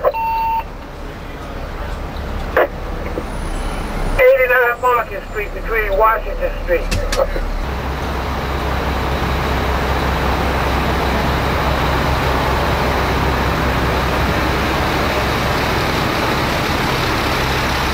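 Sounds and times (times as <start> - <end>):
diesel engine running: 0.0 - 17.9
road noise: 0.0 - 17.9.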